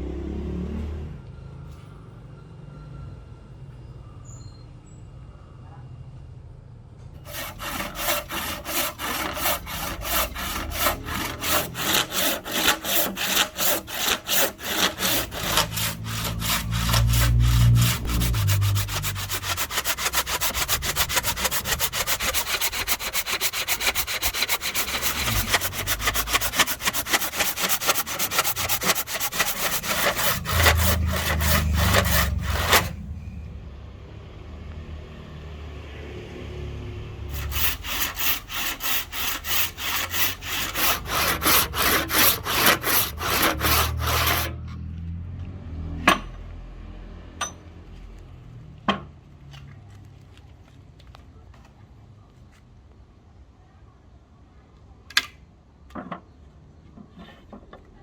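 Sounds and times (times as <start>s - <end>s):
handsaw cutting wood: 7.2s - 33.0s, 37.3s - 44.6s.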